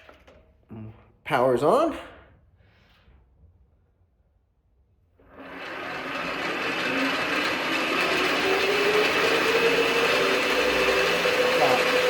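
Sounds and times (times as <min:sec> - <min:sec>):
lathe motor whining: 0:05.2 - 0:12.0.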